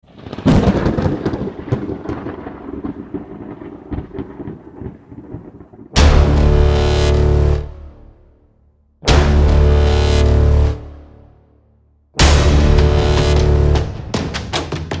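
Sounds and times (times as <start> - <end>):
thunderclap with rumble: 0.1 - 6.6
sustained musical chord: 12.2 - 14.0.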